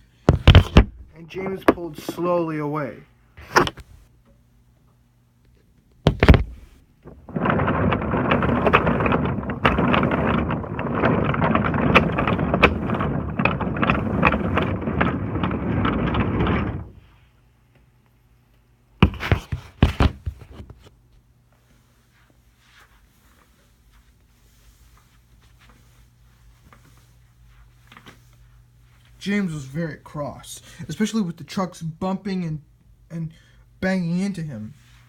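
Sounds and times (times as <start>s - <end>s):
knocks: 0.3s - 2.2s, 6.1s - 17.0s, 19.0s - 20.7s
thump: 6.1s - 6.7s.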